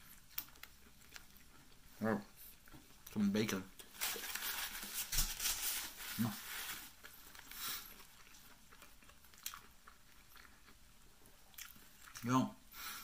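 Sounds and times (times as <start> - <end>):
person chewing: 0.0 - 3.2, 6.9 - 12.3.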